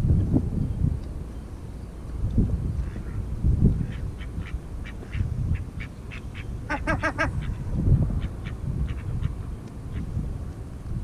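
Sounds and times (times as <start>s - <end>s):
wind on microphone: 0.0s - 11.0s
waterbirds calling: 2.8s - 10.1s.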